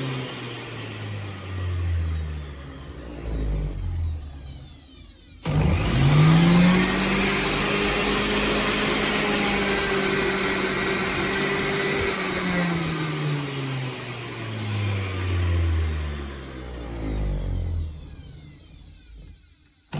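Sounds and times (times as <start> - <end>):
juice extractor motor whirring: 0.0 - 19.9.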